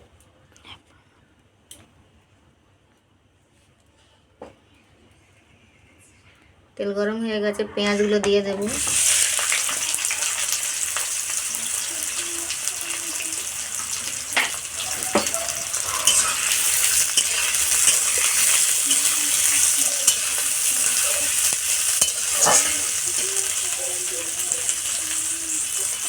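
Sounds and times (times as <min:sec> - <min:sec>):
onions sizzling in hot oil: 0:08.6 - 0:26.0.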